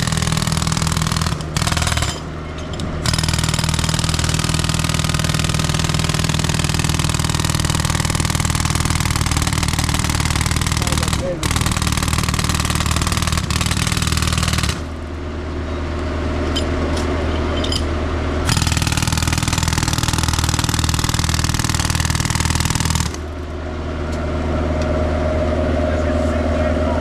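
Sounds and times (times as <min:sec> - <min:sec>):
jackhammer hammering pavement: 0:00.0 - 0:02.4, 0:03.0 - 0:15.0, 0:18.5 - 0:23.4
steady engine hum: 0:00.0 - 0:27.0.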